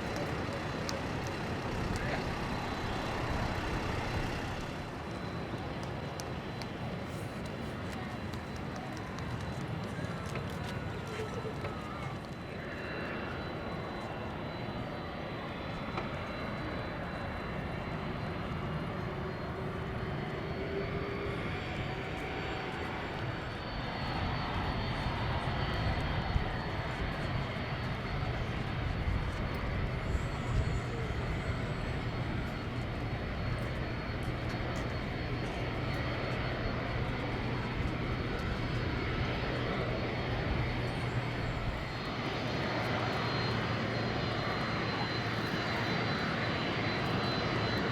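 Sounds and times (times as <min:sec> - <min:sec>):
distant jet engine: 0:00.0 - 0:47.9
jet engine hum taxiing: 0:00.0 - 0:47.9.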